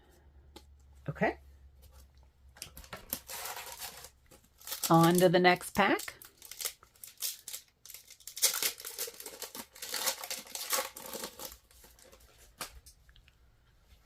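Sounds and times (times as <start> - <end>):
wrapper crinkling: 2.6 - 12.6.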